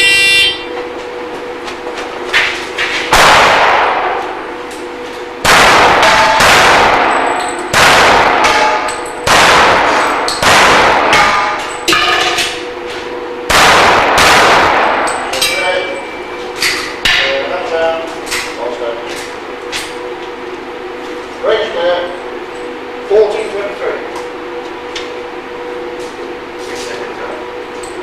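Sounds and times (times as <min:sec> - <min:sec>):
pistol shots echoing: 0:03.1 - 0:04.2, 0:05.4 - 0:11.6, 0:13.5 - 0:15.4
steel targets clanging: 0:11.0 - 0:12.6, 0:14.9 - 0:17.4.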